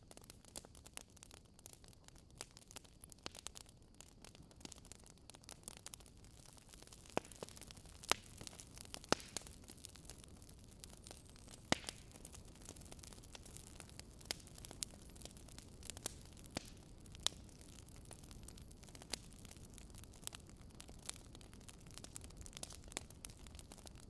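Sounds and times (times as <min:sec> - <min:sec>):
soft steady hiss: 0:00.0 - 0:24.0
wood fire crackling: 0:00.0 - 0:24.0.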